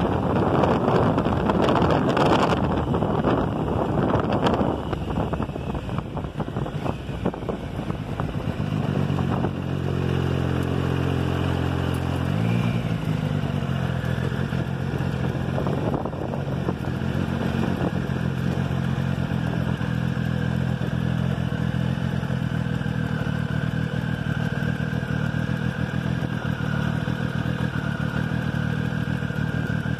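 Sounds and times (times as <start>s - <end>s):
wind noise: 0.0s - 9.9s, 14.2s - 18.3s
motorcycle engine at low revs: 0.0s - 29.9s.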